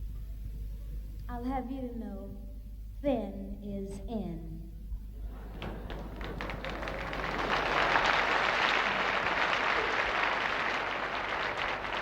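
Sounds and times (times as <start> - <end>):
audience laughing: 5.2 - 12.0
audience applauding: 5.4 - 12.0.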